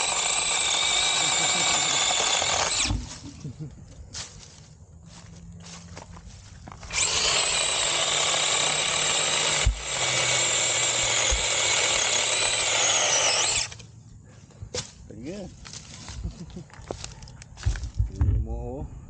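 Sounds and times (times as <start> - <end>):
electric chainsaw cutting wood: 0.0 - 3.2, 6.9 - 13.9.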